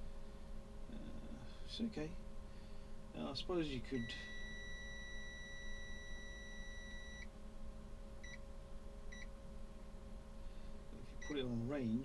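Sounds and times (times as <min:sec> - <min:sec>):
multimeter beeping: 0:04.0 - 0:07.3.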